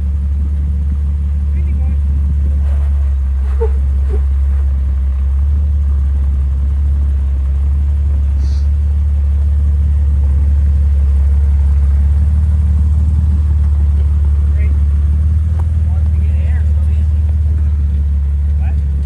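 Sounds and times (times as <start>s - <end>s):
jeep engine rumbling at low speed: 0.0s - 19.0s.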